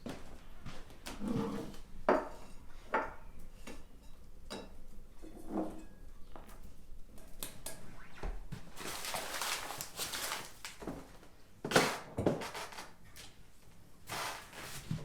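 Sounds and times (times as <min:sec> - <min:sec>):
rustling and scraping: 0:08.6 - 0:13.2, 0:14.1 - 0:15.0.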